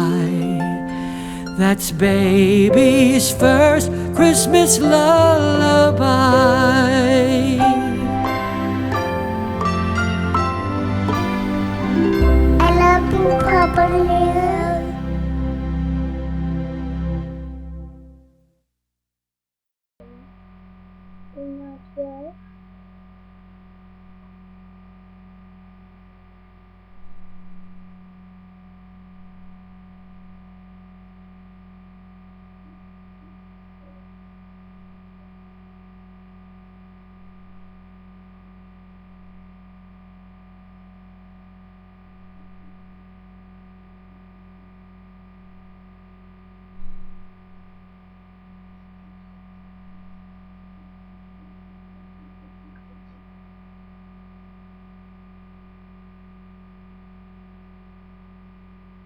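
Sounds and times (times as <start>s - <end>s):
electrical hum: 0.0s - 18.1s.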